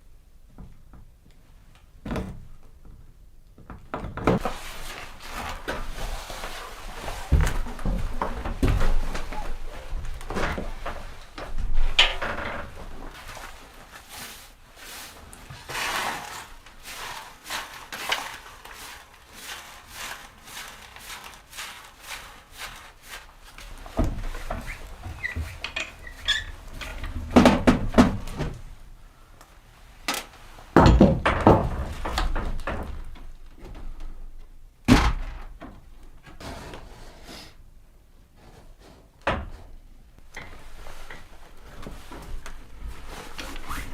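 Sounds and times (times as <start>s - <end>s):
wooden thunks and knocks: 2.0s - 3.0s, 3.6s - 4.6s, 7.2s - 13.0s, 23.9s - 28.6s, 30.8s - 34.2s, 34.9s - 35.9s.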